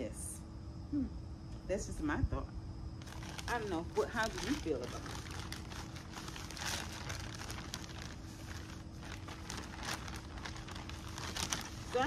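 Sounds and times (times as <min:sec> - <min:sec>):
faint steady hum: 0:00.0 - 0:12.0
plastic plant pots crinkling: 0:03.0 - 0:12.0.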